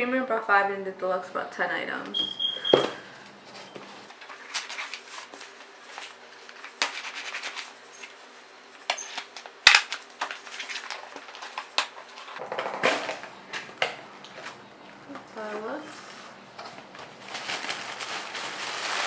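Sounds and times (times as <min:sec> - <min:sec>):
packaging rustling and crinkling: 0:04.1 - 0:12.4, 0:16.6 - 0:19.0.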